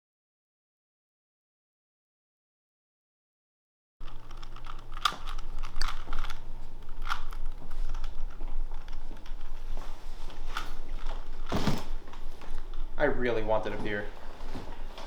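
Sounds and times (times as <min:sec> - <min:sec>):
low steady hum: 0:04.0 - 0:15.0.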